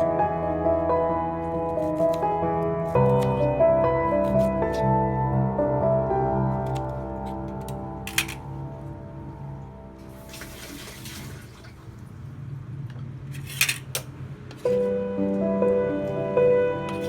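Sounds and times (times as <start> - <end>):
soft background music: 0.0 - 11.6, 14.4 - 17.0
watery rush: 10.1 - 12.0.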